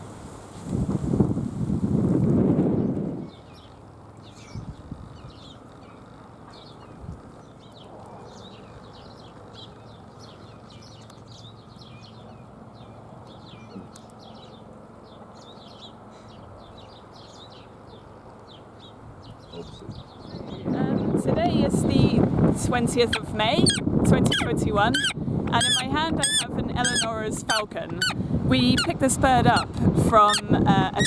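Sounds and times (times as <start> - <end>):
small birds chirping: 3.2 - 21.2, 22.9 - 31.0.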